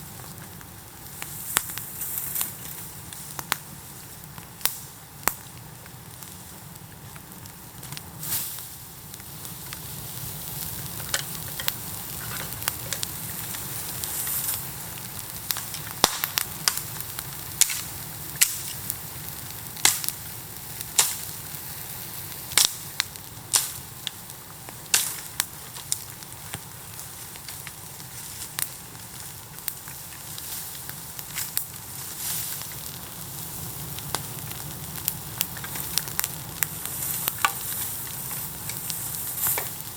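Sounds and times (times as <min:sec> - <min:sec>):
bonfire hissing: 0:00.0 - 0:39.9
fire popping and cracking: 0:00.0 - 0:39.9.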